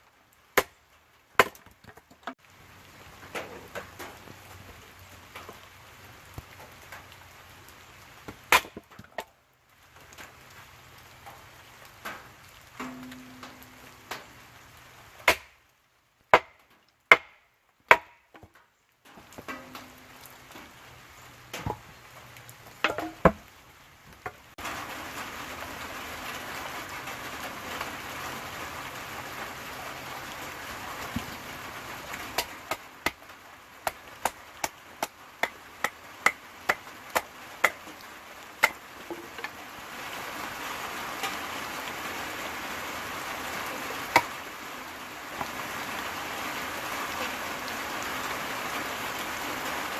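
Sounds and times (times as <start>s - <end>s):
wood being chopped: 1.4s - 2.3s, 8.3s - 9.3s, 15.2s - 15.6s, 16.3s - 18.6s, 21.6s - 21.8s, 22.8s - 23.4s, 33.8s - 37.9s, 38.6s - 39.5s, 44.1s - 44.3s
rain hissing: 2.3s - 17.0s, 18.5s - 49.9s.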